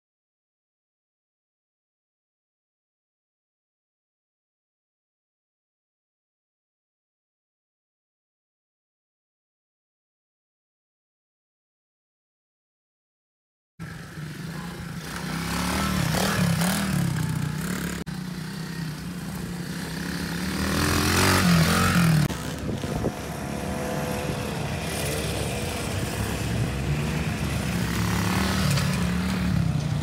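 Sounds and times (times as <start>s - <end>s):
small motorbike engine revving: 13.8s - 30.0s.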